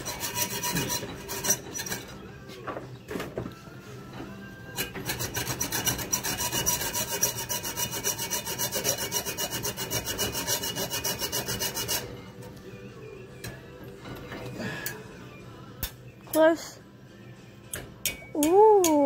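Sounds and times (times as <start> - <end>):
hand file rasping: 0.0 - 2.2, 4.8 - 12.2.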